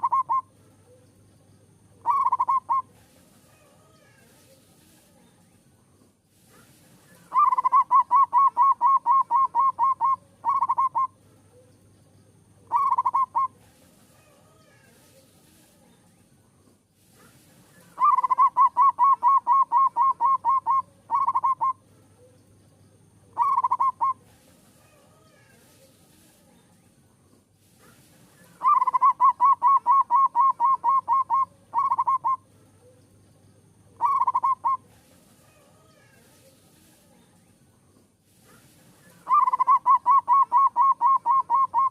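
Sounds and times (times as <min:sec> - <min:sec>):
dove cooing: 0:00.0 - 0:01.0, 0:02.0 - 0:04.2, 0:07.2 - 0:11.7, 0:12.6 - 0:13.6, 0:17.8 - 0:21.8, 0:23.3 - 0:24.3, 0:28.4 - 0:32.9, 0:34.0 - 0:36.1, 0:39.0 - 0:41.9.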